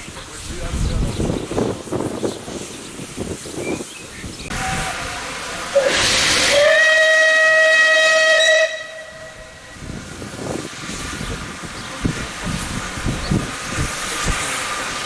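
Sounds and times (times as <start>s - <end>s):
rush of steam: 0.0s - 15.0s
steam locomotive whistle: 4.5s - 9.8s.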